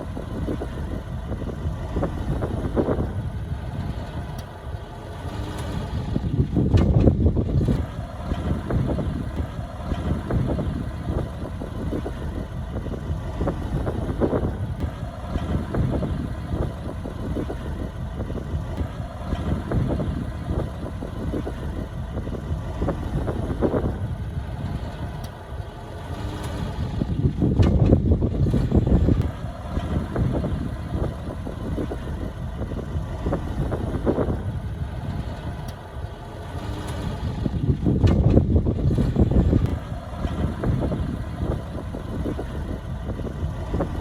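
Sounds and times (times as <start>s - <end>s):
diesel construction machinery running: 0.0s - 44.0s.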